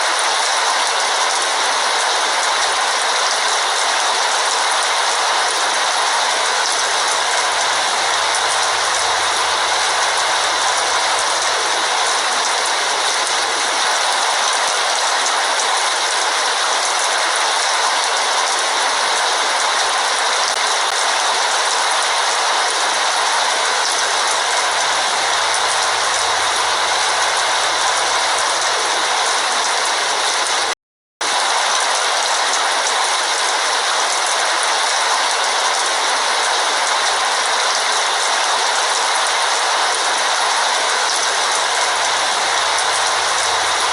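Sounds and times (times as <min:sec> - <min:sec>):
heavy rain falling: 0:00.0 - 0:43.9.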